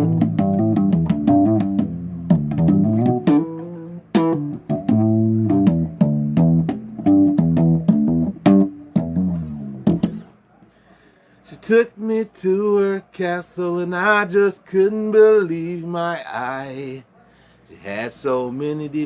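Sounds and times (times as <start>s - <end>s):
bass guitar riff: 0.0s - 10.3s.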